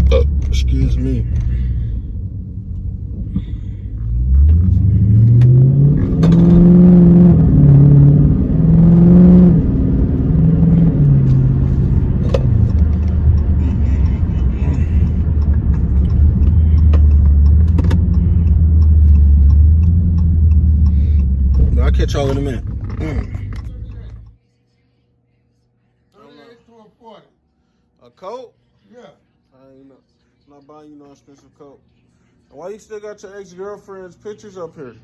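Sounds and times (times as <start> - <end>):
car engine accelerating: 0.0 - 24.4.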